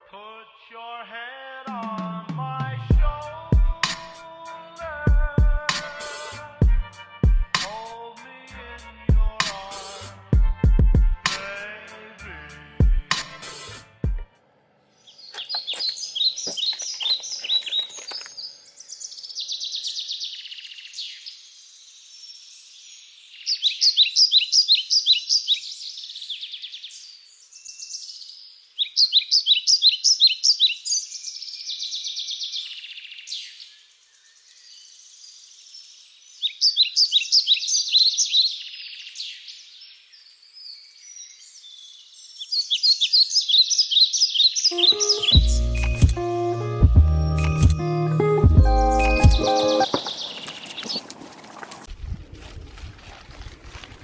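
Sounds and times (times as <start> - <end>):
soft bird chirping: 14.9 - 46.0, 48.9 - 51.8
songbird singing: 14.9 - 51.9.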